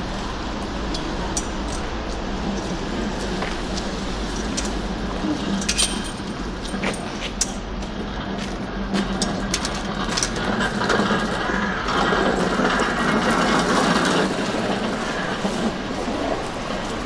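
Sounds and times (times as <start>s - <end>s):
rushing noise: 0.0s - 8.9s
rattling clicking mechanism: 2.6s - 7.6s.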